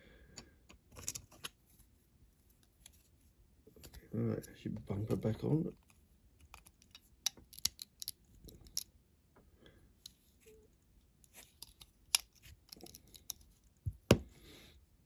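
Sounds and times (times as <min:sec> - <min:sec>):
toy car parts clicking: 0:06.4 - 0:08.9, 0:11.5 - 0:13.5.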